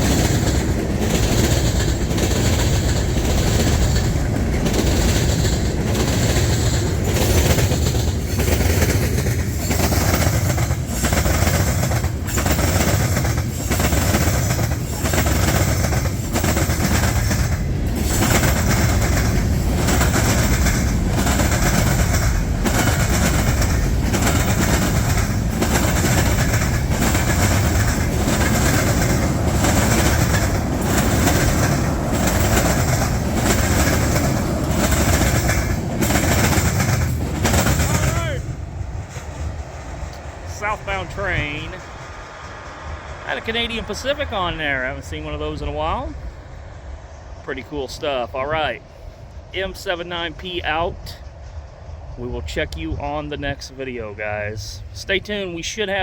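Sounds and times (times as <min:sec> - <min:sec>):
train wheels clacking on rails: 0:00.0 - 0:46.2.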